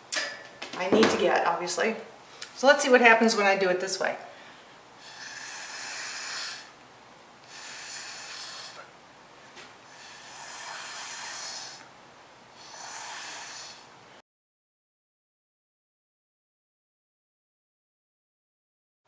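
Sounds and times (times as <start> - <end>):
person blowing through straw: 5.0 - 6.7, 7.5 - 8.9, 9.9 - 11.8, 12.6 - 13.9.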